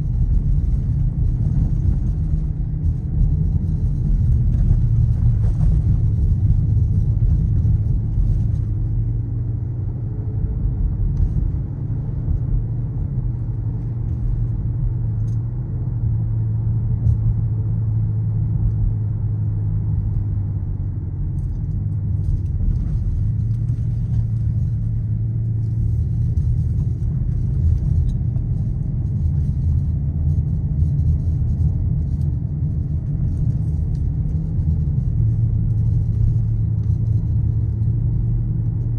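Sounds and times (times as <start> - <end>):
car engine droning at cruise: 0.0 - 38.9
tyre and road noise: 0.0 - 38.9.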